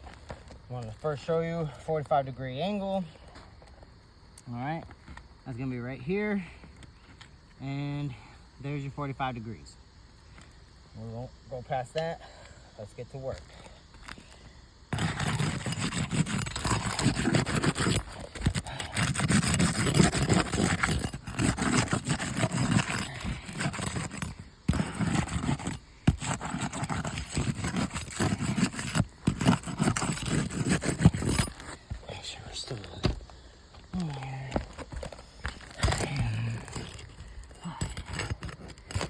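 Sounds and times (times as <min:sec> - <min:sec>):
pry tool scraping shingles: 0:14.9 - 0:39.0.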